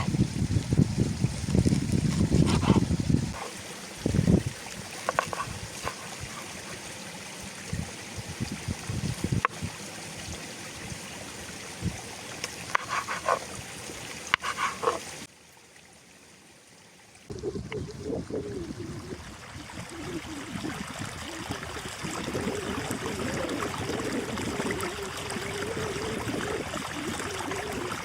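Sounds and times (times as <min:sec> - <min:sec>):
stream trickling: 0:00.0 - 0:28.0
pitched calls: 0:12.7 - 0:13.5, 0:14.3 - 0:15.3.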